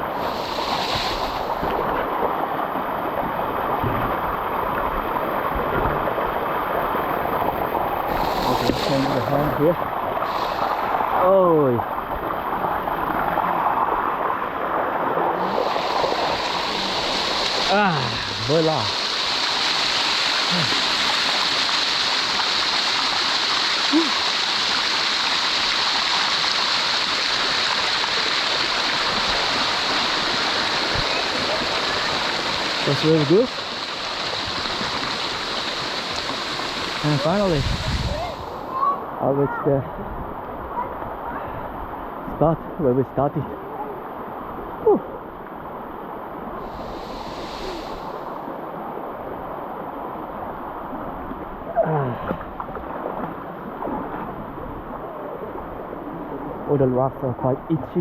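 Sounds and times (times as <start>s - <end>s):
waterfall rushing over rocks: 0.0s - 39.9s, 46.6s - 50.4s.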